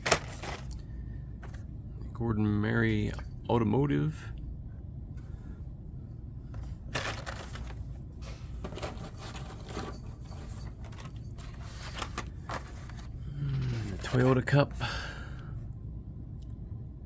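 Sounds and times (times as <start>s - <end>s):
cardboard and plastic crinkling: 0.0s - 0.8s, 6.6s - 14.5s.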